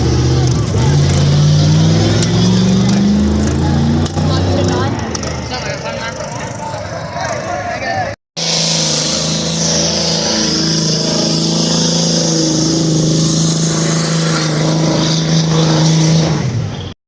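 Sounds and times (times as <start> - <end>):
car engine at high revs: 0.0 - 5.6, 8.4 - 17.0
loud hiss: 8.4 - 16.4.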